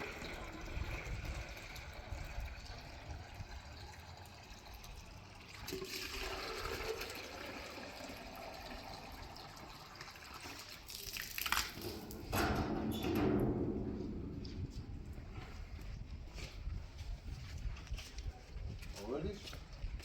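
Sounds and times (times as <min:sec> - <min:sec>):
water running: 0:00.0 - 0:14.8.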